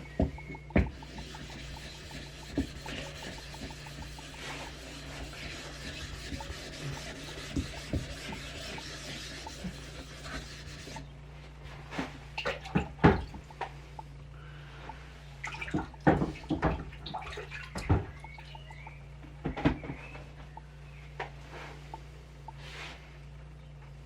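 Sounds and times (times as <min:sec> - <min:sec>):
blade scraping on whetstone: 0:00.6 - 0:11.1.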